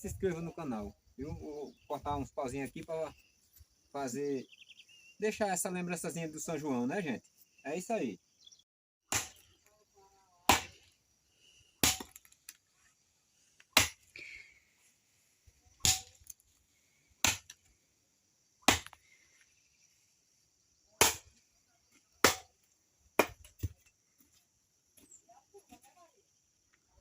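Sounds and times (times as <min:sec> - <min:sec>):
wood chopping strikes: 0:09.1 - 0:09.6, 0:10.5 - 0:10.8, 0:11.8 - 0:12.4, 0:13.7 - 0:14.1, 0:15.8 - 0:16.4, 0:17.2 - 0:17.6, 0:18.6 - 0:19.0, 0:21.0 - 0:21.4, 0:22.2 - 0:22.5, 0:23.2 - 0:23.8.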